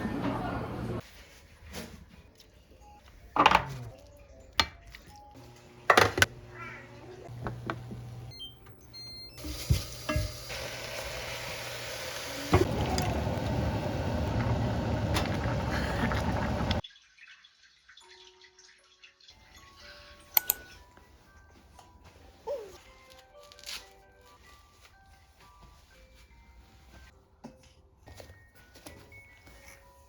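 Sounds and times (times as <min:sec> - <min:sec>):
dishes and utensils clinking: 0:09.6 - 0:10.6.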